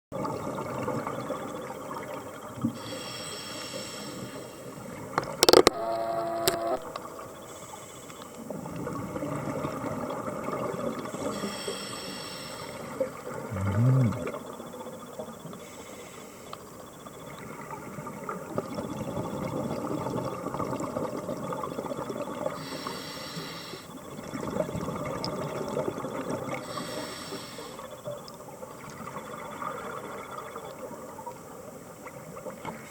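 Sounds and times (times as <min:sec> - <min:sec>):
diver breathing through regulator: 0:02.8 - 0:04.7, 0:11.3 - 0:12.9, 0:22.6 - 0:23.9, 0:26.6 - 0:27.8
low tone bending upward: 0:13.5 - 0:14.3.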